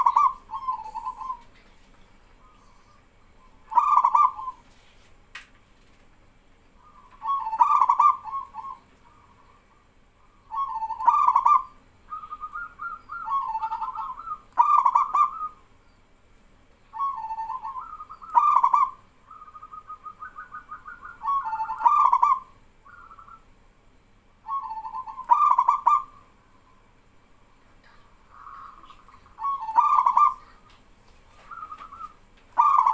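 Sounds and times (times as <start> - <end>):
doves cooing in rolling phrases: 0.0 - 4.7, 6.7 - 15.8, 16.9 - 32.9.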